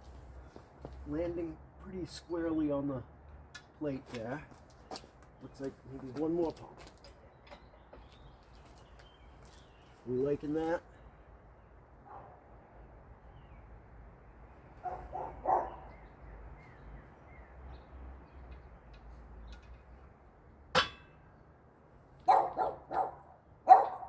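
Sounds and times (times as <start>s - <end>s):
dog barking: 14.8s - 16.0s, 22.3s - 24.0s
sharp clank: 20.8s - 21.2s.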